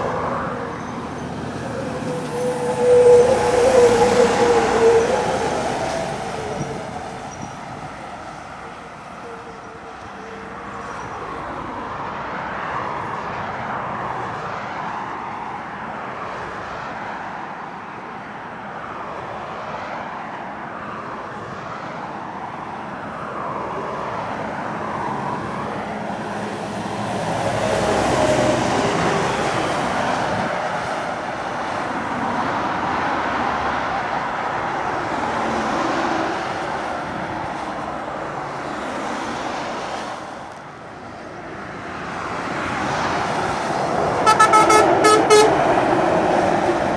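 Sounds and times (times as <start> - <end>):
heavy truck diesel engines: 0.0 - 19.5, 20.5 - 46.9
tyre and road noise: 23.7 - 46.9.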